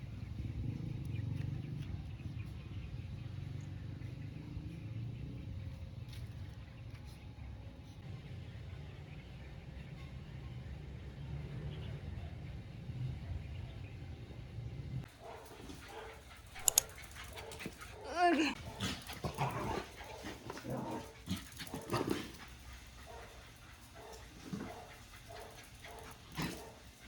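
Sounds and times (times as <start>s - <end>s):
sharp clicks: 16.4s - 17.6s.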